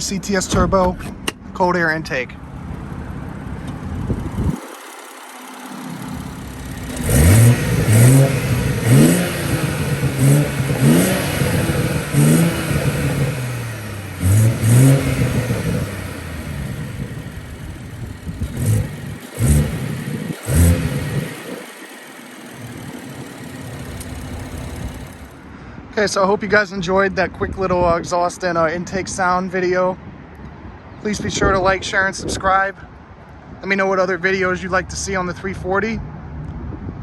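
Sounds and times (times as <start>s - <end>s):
car engine revving: 2.3s - 25.4s.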